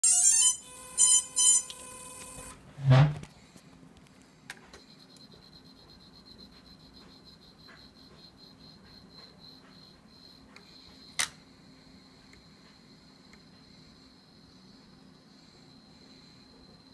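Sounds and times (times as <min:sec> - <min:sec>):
high-pitched motor buzz: 0:00.0 - 0:02.6.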